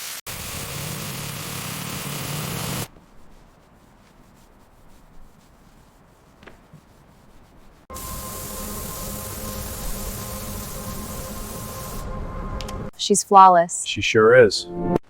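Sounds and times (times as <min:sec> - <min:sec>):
sanding tool whine: 0:00.0 - 0:02.9, 0:07.9 - 0:12.8
rasping metal sanding: 0:00.3 - 0:12.0.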